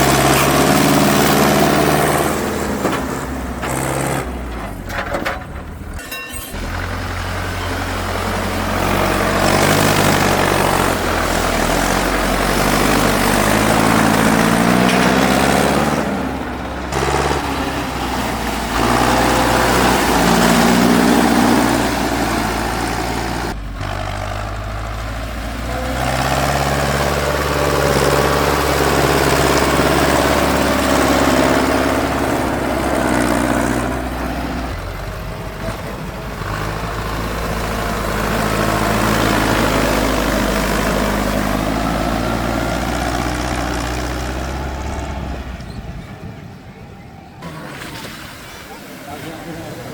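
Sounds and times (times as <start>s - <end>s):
tractor engine revving: 0.0s - 49.9s.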